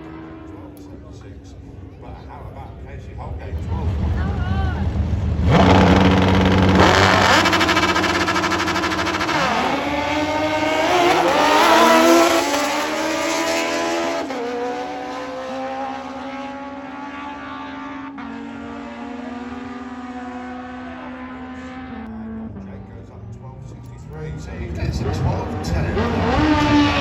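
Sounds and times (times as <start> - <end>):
motorcycle engine revving: 3.7 - 22.7, 24.8 - 27.0.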